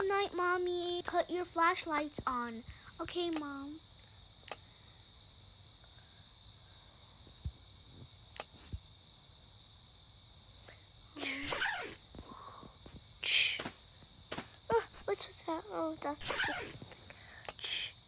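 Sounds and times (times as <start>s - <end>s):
crickets chirping: 0.0s - 18.0s
faint clicks: 1.8s - 4.6s, 8.3s - 8.8s, 16.8s - 17.8s.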